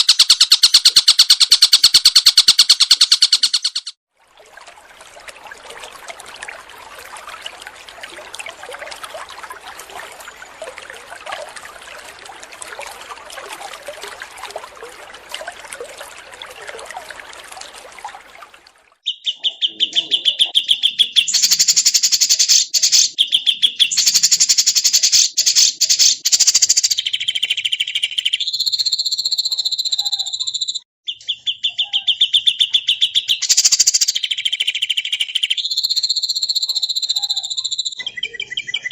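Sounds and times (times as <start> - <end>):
twittering chorus of small birds: 19.1 - 38.9.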